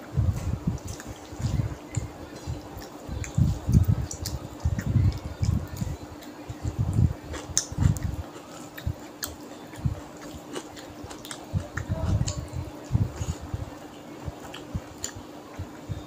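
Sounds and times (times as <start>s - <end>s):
faint steady hum: 0.0s - 16.0s
wet chewing of food: 0.8s - 6.7s, 7.3s - 12.5s.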